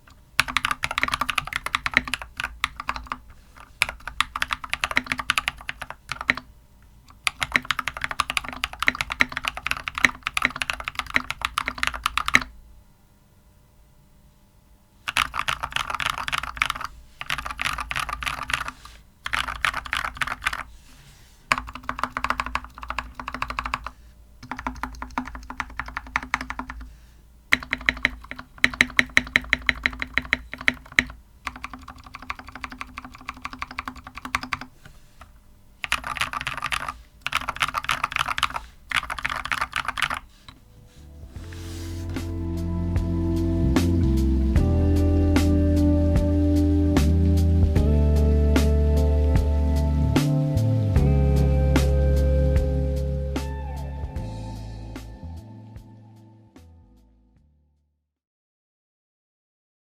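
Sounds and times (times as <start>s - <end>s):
mechanical keyboard typing: 0.1s - 6.5s, 7.1s - 12.5s, 15.1s - 20.7s, 21.5s - 26.9s, 27.5s - 40.6s.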